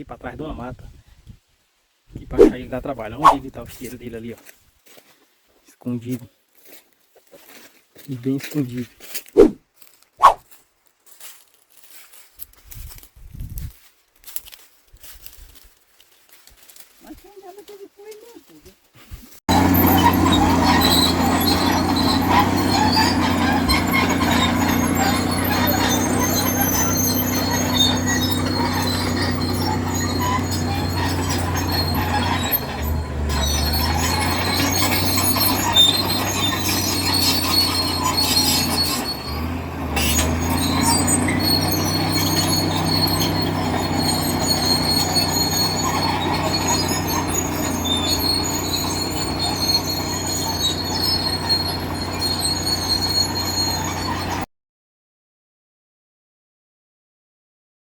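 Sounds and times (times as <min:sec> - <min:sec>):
metallic squeals and rattles: 0:02.2 - 0:03.5, 0:19.5 - 0:54.5
heavy vehicle engine running: 0:19.5 - 0:54.4.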